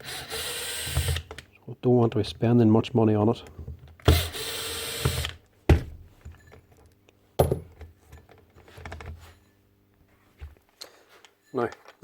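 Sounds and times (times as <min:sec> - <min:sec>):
whirring power tool: 0:00.0 - 0:01.4, 0:04.0 - 0:05.4.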